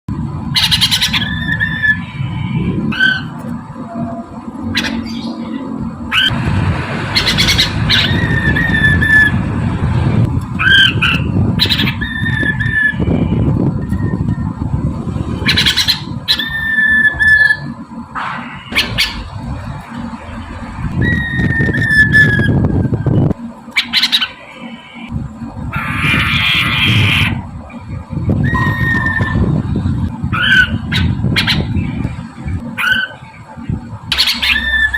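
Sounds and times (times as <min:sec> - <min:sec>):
bird whistling song: 0:00.6 - 0:06.3, 0:07.2 - 0:09.4, 0:10.6 - 0:14.6, 0:15.4 - 0:17.7, 0:21.0 - 0:24.4, 0:28.4 - 0:29.5, 0:34.1 - 0:34.9
rough low noise: 0:17.7 - 0:23.6.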